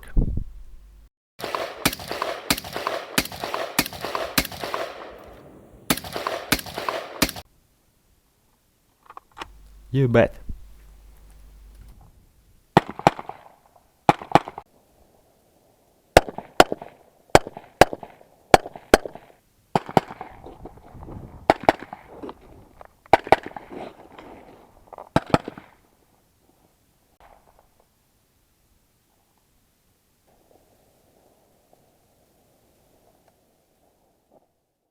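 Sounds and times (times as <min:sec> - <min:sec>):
suppressed rifle shots: 0:01.4 - 0:07.4, 0:12.8 - 0:13.5.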